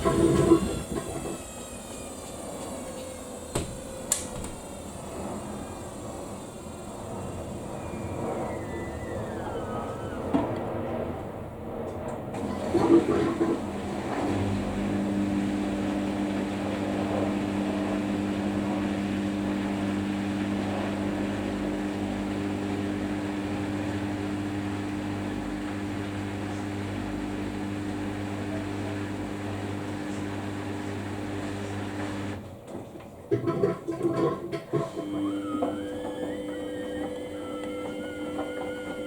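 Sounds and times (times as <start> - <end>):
washing machine humming: 0.0 - 39.0.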